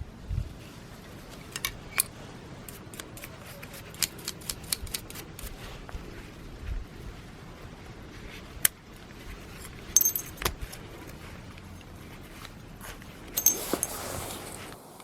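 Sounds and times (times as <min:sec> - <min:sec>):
metal tools clinking on workbench: 0:09.6 - 0:10.6, 0:13.3 - 0:14.0.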